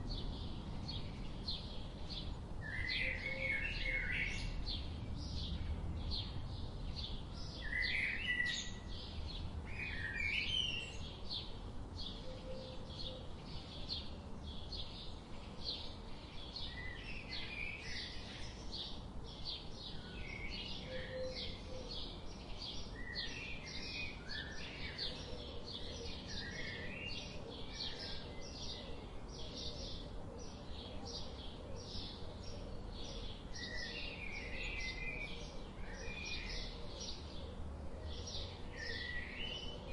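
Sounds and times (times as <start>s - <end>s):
soft background rumble: 0.0s - 3.3s, 4.3s - 9.8s.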